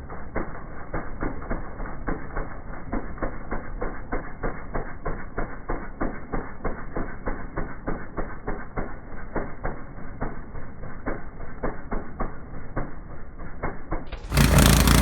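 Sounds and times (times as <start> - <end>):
snowblower engine clattering: 13.6 - 15.0.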